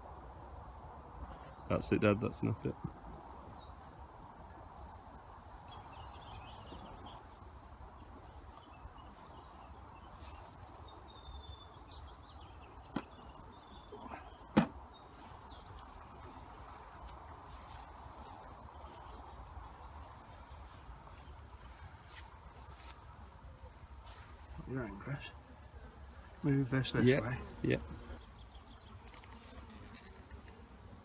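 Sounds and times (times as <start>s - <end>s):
outdoor background noise: 0.0s - 31.0s
small birds chirping: 1.1s - 31.0s
sharp knocks: 14.5s - 14.8s.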